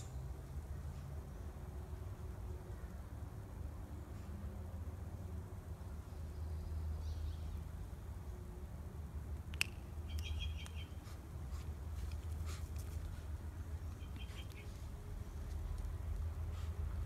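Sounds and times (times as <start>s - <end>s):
bird chirping: 9.6s - 11.1s, 13.6s - 14.8s.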